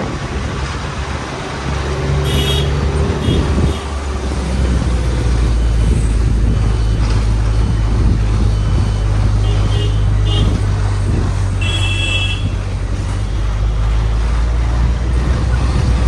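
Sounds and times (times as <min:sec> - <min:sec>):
bus engine running: 0:00.0 - 0:16.0.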